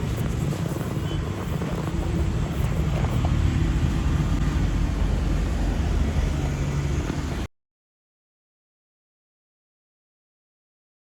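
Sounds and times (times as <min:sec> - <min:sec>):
car engine and road rumble: 0:00.0 - 0:07.5.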